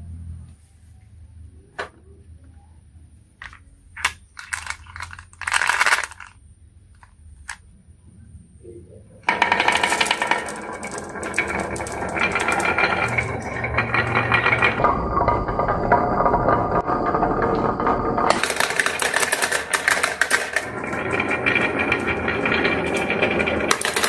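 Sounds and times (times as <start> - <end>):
marbles clattering down wooden run: 4.4 - 6.4, 9.3 - 24.0.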